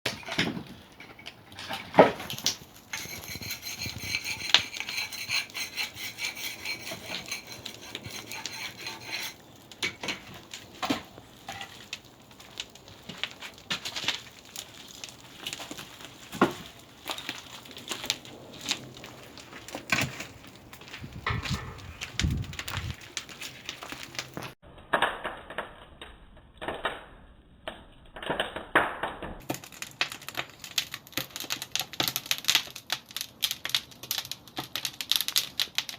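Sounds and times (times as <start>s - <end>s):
scraping with faint ringing: 2.9s - 10.4s
hard objects knocking and clicking: 21.0s - 24.6s.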